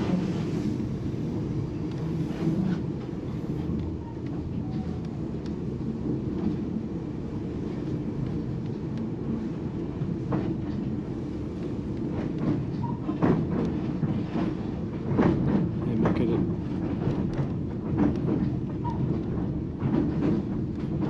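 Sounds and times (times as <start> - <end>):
train wheels rumbling on rails: 0.0 - 21.0
sharp clacks and knocks: 12.0 - 21.0.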